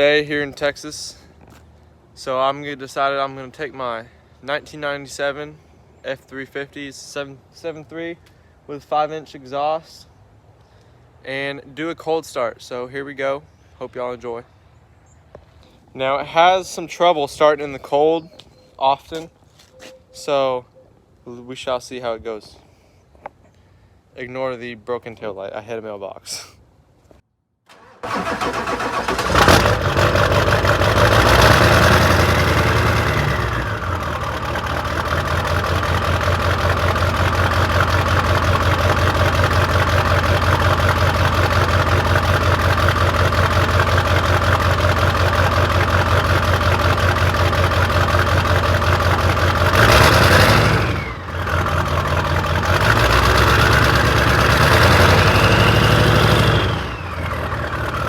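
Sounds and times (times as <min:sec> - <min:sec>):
diesel engine idling and revving: 0:27.7 - 0:58.0.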